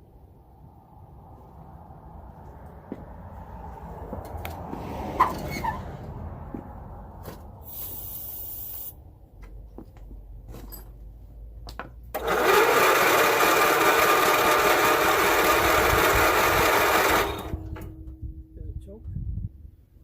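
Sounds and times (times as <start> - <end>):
brief hiss: 7.6 - 9.0
engine cranking without starting: 12.1 - 18.0.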